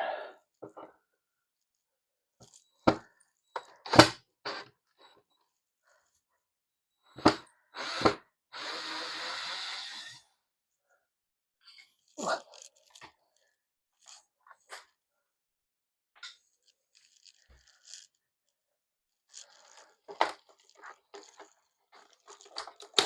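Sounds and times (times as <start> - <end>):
plastic track clicks and knocks: 2.4 - 4.6, 19.3 - 23.0.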